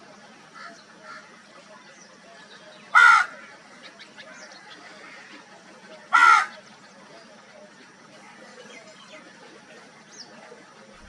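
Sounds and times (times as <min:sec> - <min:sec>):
crow cawing: 0:02.9 - 0:03.6, 0:06.1 - 0:06.6.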